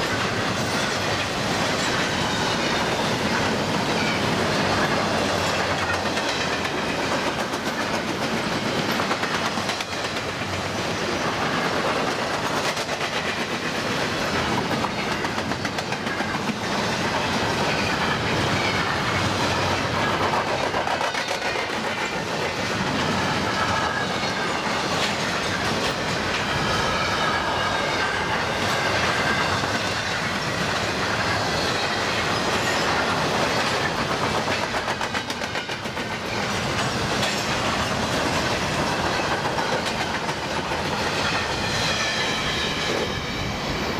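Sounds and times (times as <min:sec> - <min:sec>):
wheels clicking over rail joints: 0:00.0 - 0:42.2
freight train rumbling past: 0:00.0 - 0:43.9
high wheel squeal: 0:41.0 - 0:43.8.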